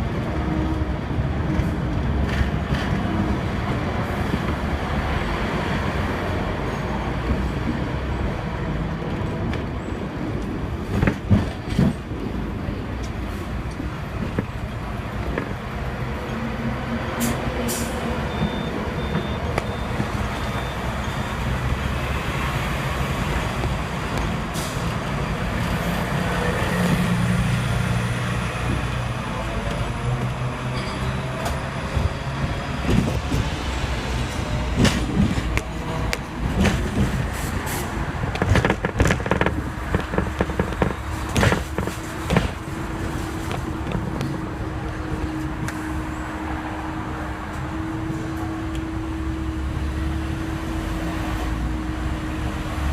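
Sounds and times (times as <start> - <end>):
tram rumbling on rails: 0.0 - 52.9
wheels clacking over rails: 28.6 - 44.8.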